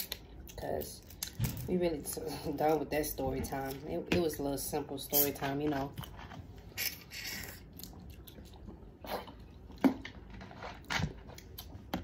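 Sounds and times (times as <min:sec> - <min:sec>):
wet chewing and lip-smacking: 0:06.0 - 0:10.3.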